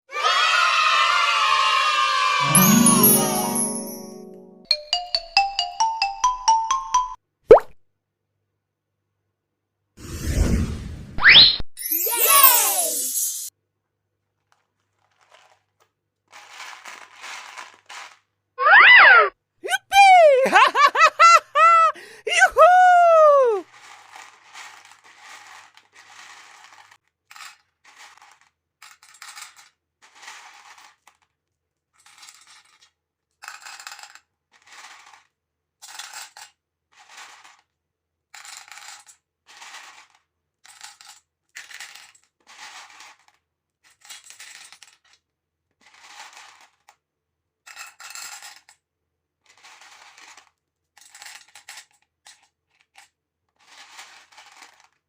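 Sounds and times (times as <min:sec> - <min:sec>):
beads rattling in container: 0:16.3 - 0:18.2, 0:23.7 - 0:31.2, 0:38.4 - 0:43.3, 0:53.6 - 0:55.0.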